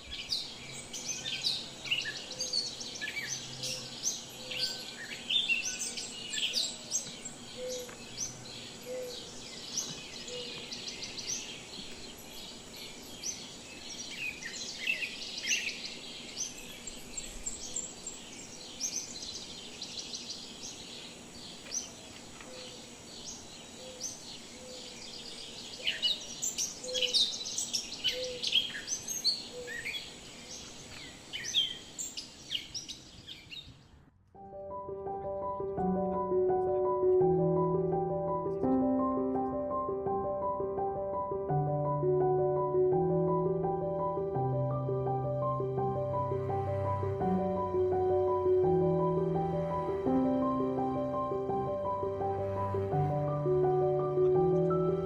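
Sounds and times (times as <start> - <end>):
small birds chorus: 0.0 - 34.1, 34.7 - 55.0.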